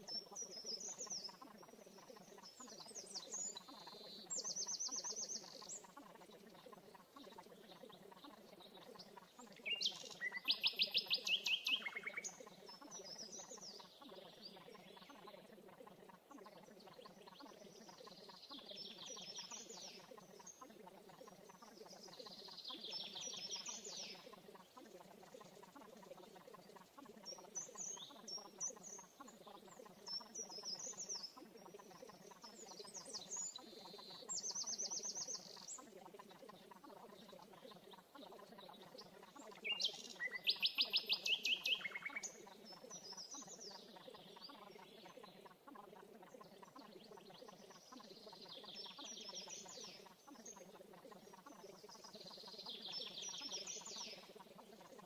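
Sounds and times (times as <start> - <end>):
faint bird calls: 0.0 - 55.0
faint low background noise: 0.0 - 55.0
songbird singing: 0.0 - 55.0.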